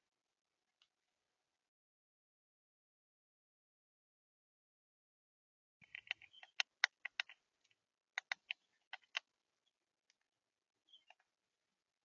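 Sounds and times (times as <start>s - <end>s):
birds pecking seed: 5.8s - 9.3s.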